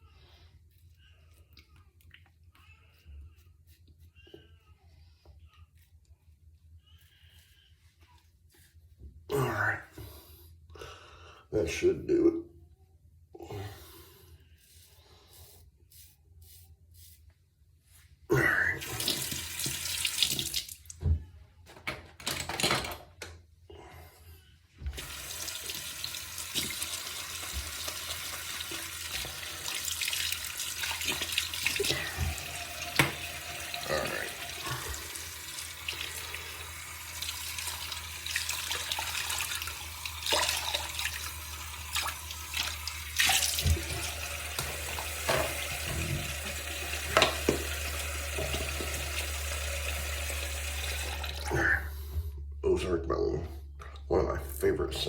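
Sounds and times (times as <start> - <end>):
tap running into sink: 30.9 - 33.8, 42.0 - 49.9.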